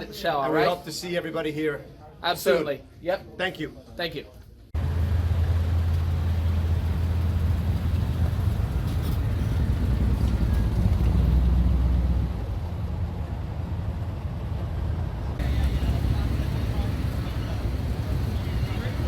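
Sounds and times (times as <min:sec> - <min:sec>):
vehicle engine running: 0:04.8 - 0:19.0.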